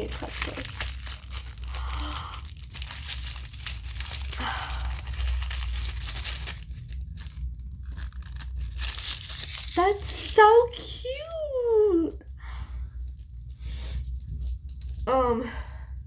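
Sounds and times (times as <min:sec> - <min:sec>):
plastic packaging tearing: 0:00.0 - 0:11.2
low steady hum: 0:00.0 - 0:16.0.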